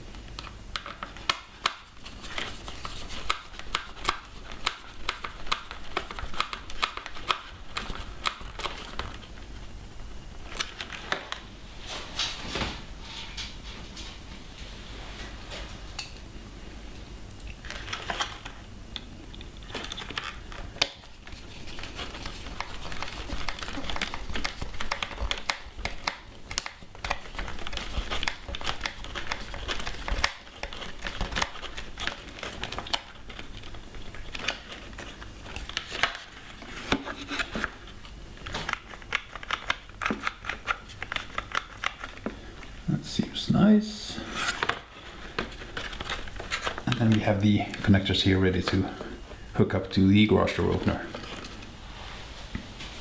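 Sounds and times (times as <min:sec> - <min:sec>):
plastic parts rustling and scraping: 0:17.6 - 0:18.6, 0:19.6 - 0:42.8, 0:44.2 - 0:49.3.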